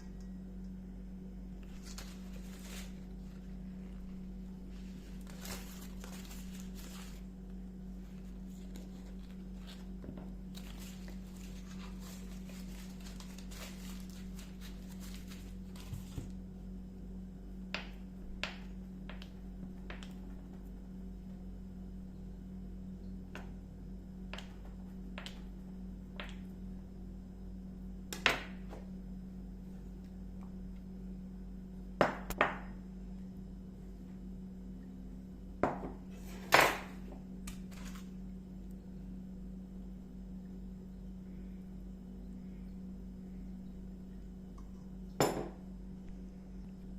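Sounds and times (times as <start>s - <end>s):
low electrical hum: 0.0s - 46.9s
soft rustling and handling: 1.5s - 16.4s.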